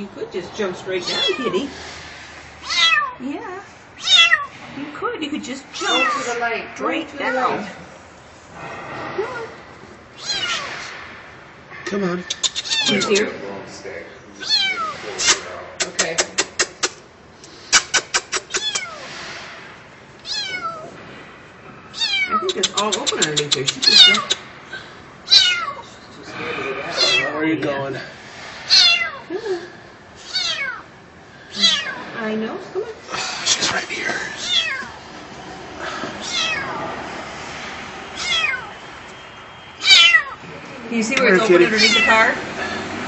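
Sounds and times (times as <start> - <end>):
kitten meowing: 1.0 - 1.6, 2.6 - 3.2, 4.0 - 4.5, 5.8 - 6.4, 10.2 - 10.7, 12.4 - 13.2, 14.4 - 15.4, 18.2 - 19.0, 20.2 - 20.9, 21.9 - 22.6, 23.8 - 24.4, 25.3 - 25.9, 26.9 - 27.4, 28.7 - 29.2, 30.2 - 30.8, 31.5 - 32.0, 34.4 - 35.0, 36.2 - 36.8, 38.2 - 38.7, 39.8 - 40.4, 41.8 - 42.2.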